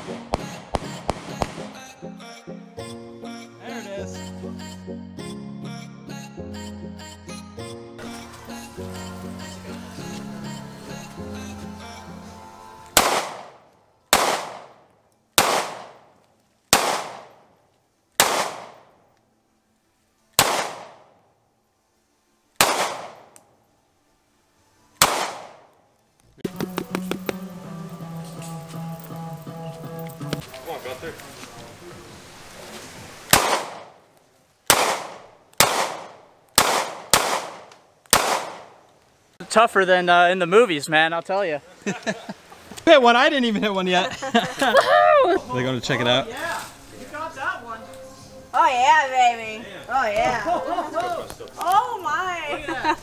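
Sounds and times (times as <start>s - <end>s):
pistol shots with echo: 13.0s - 16.1s, 16.7s - 17.5s, 18.2s - 19.0s, 20.4s - 21.2s, 22.6s - 23.4s, 25.0s - 25.8s, 33.3s - 34.0s, 34.7s - 38.8s.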